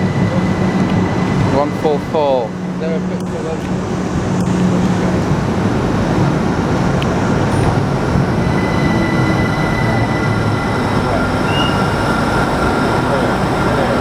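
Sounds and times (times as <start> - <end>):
train wheels rumbling on rail: 0.0 - 14.0
thin high whines: 7.5 - 14.0.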